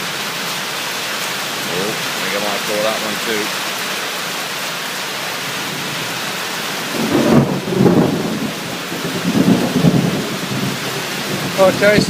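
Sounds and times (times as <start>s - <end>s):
rain on a tin roof: 0.0s - 12.0s
thunder rumbling: 5.5s - 12.0s.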